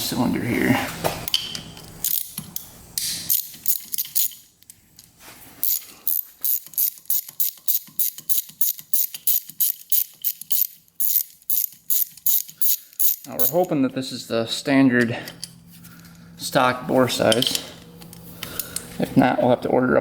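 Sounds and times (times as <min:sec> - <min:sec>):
socket ratchet clicking: 0:02.0 - 0:04.8, 0:05.6 - 0:13.7.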